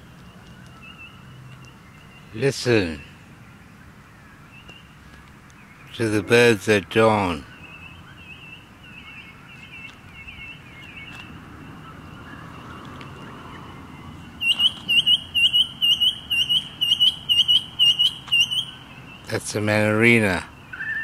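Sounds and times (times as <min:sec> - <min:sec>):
bird whistling calls: 0:07.4 - 0:19.3, 0:20.6 - 0:21.0.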